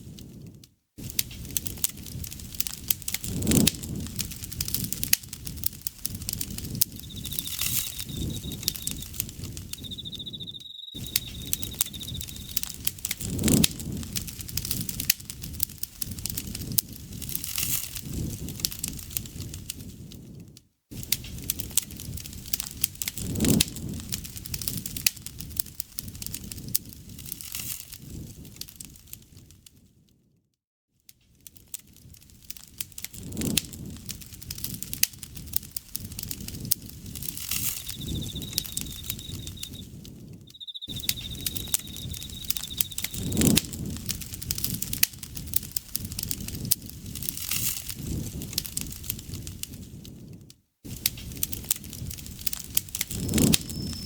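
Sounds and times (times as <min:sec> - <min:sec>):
campfire crackling and popping: 0:00.0 - 0:29.6, 0:31.4 - 0:54.0
insect trilling: 0:06.5 - 0:12.8, 0:37.2 - 0:43.6, 0:53.2 - 0:54.0.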